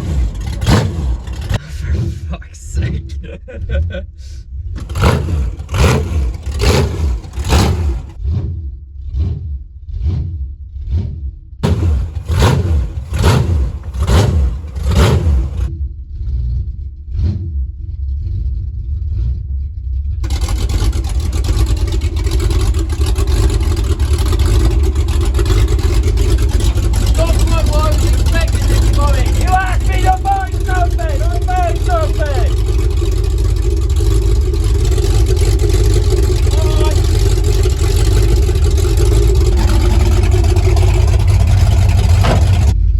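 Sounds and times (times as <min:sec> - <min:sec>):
car engine revving hard: 0:00.0 - 0:02.3, 0:04.8 - 0:08.4, 0:10.0 - 0:15.7, 0:20.2 - 0:42.8.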